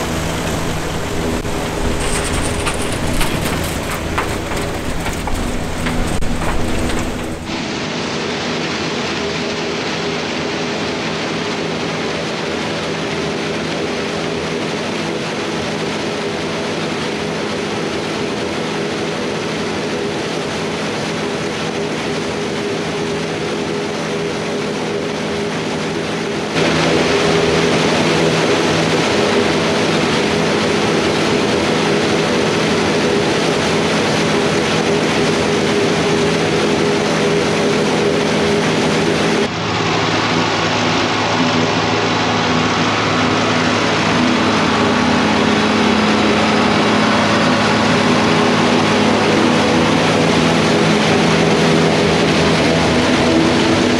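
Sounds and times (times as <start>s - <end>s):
tractor engine humming: 0.0s - 7.6s, 34.3s - 53.9s
farm machinery running: 0.0s - 53.9s.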